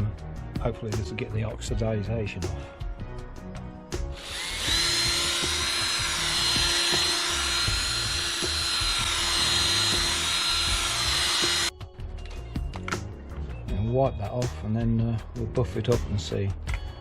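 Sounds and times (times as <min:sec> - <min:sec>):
electric drill polisher whining: 0:04.2 - 0:11.7.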